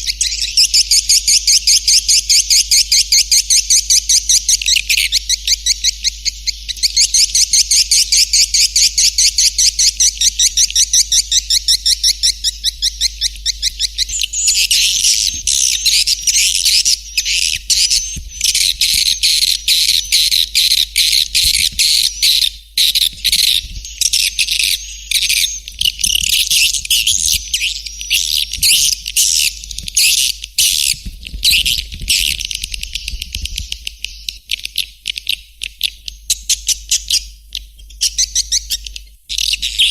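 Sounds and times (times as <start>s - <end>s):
twittering bird chirps: 0.0s - 39.9s
steady low hum: 8.0s - 36.3s.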